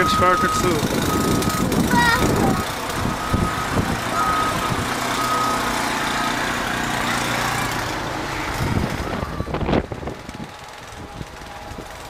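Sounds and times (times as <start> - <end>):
reversing alarm beeping: 0.0 - 7.8
truck engine running: 0.0 - 12.0.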